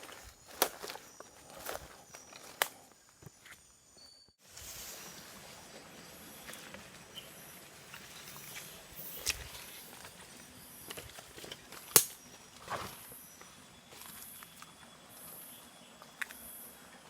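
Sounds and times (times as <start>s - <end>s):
rustles: 4.4s - 16.9s.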